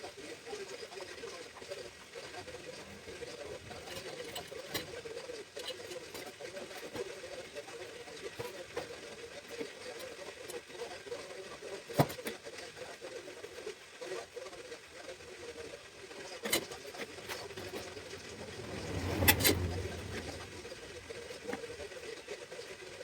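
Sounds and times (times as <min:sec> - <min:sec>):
brief low rumble: 0:17.1 - 0:21.8.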